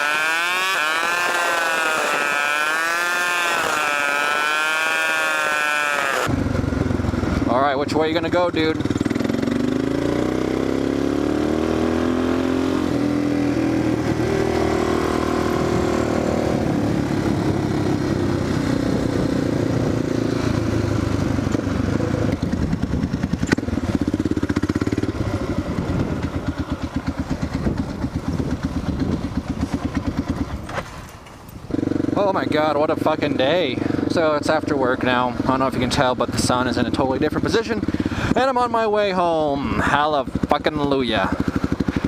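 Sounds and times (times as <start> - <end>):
motorcycle engine revving: 0.0 - 31.1, 31.7 - 38.6, 39.2 - 42.0.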